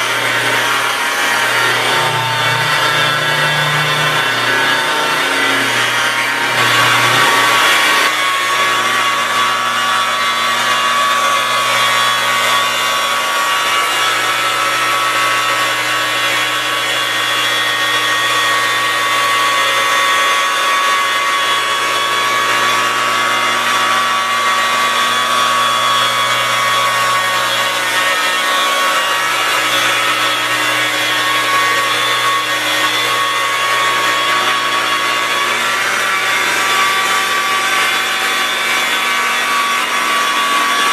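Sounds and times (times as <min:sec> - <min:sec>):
buffer motor whine: 0:00.0 - 0:40.9.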